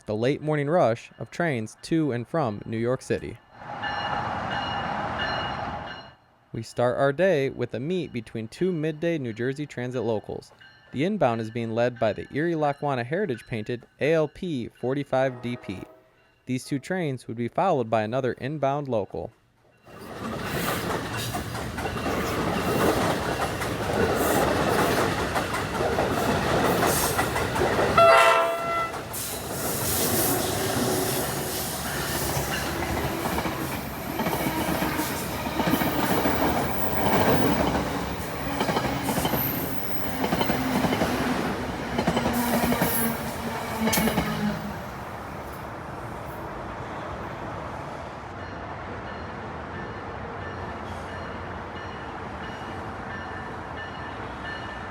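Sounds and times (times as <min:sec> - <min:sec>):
train wheels clacking: 0:19.9 - 0:44.9
train horn blast: 0:28.0 - 0:29.1, 0:42.3 - 0:44.9.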